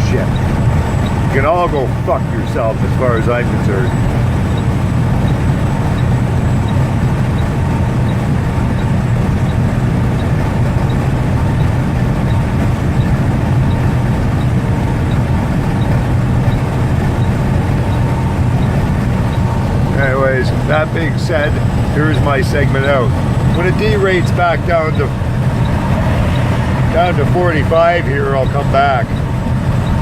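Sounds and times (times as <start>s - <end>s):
road noise: 0.0s - 30.0s
truck diesel engine drone: 0.0s - 30.0s.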